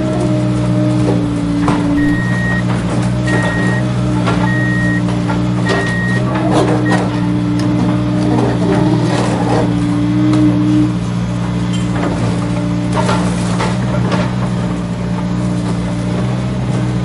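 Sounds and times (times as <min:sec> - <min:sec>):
scattered clicks: 0:02.0 - 0:03.8, 0:04.5 - 0:05.1, 0:05.7 - 0:06.2
reversing beeper: 0:02.0 - 0:05.1, 0:05.7 - 0:07.1.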